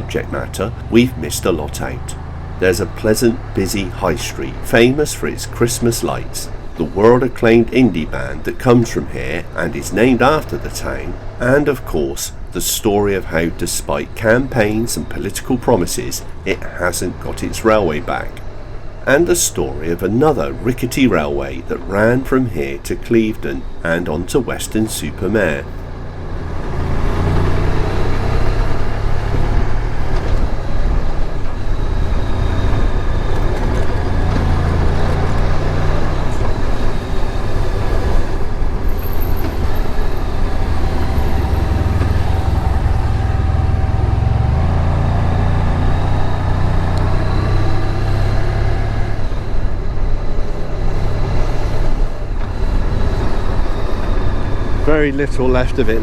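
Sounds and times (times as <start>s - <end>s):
motorcycle engine running: 0.0s - 7.2s, 25.0s - 56.0s
wind noise rumble: 49.0s - 56.0s.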